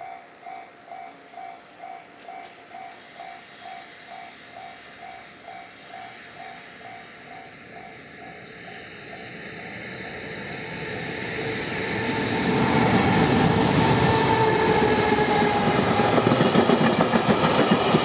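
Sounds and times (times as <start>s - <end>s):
freight train passing: 7.3s - 18.0s.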